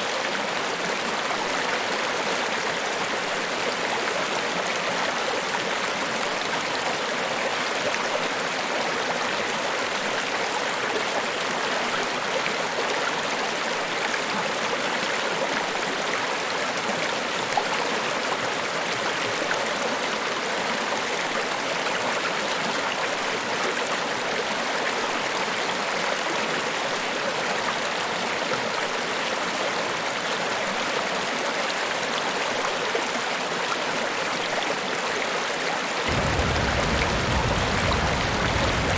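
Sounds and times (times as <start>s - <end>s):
rush of falling water: 36.0s - 38.9s.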